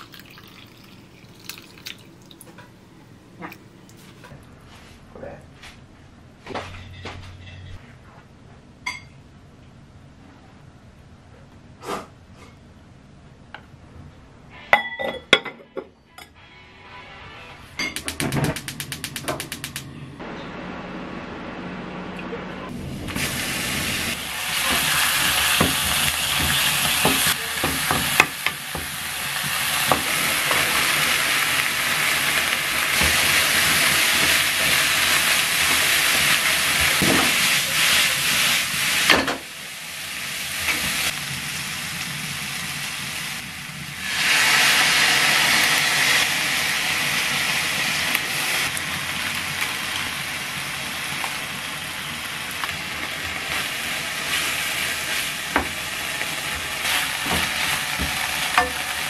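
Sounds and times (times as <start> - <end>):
food sizzling in a frying pan: 22.8 - 59.0.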